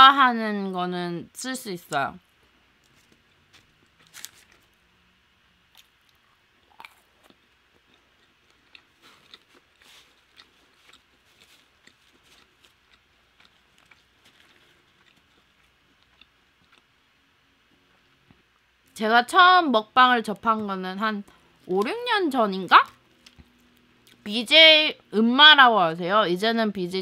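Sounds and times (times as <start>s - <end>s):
crunching and chewing fried chicken: 5.7s - 18.4s.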